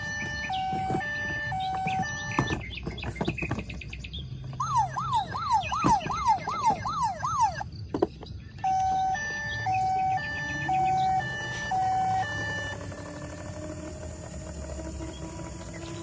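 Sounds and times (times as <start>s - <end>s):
toy electronic siren: 0.0s - 2.6s, 4.6s - 7.7s, 8.6s - 16.0s.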